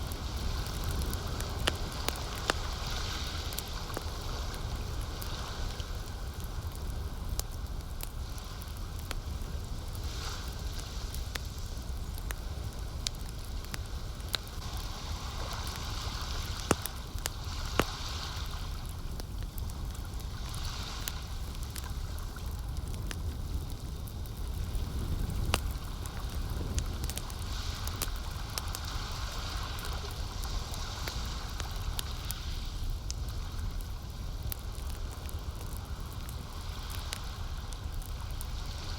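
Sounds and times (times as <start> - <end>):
campfire crackling: 0.0 - 38.9
lake water washing: 14.6 - 19.0.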